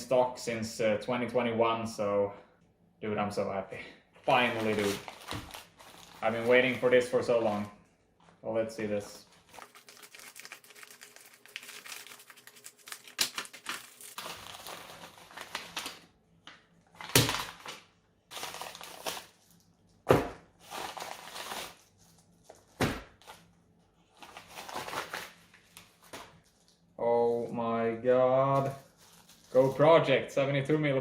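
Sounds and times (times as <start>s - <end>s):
packaging crinkling and tearing: 4.3s - 7.6s, 9.3s - 16.1s, 16.9s - 19.7s, 20.6s - 23.4s, 24.0s - 26.9s, 28.6s - 30.0s.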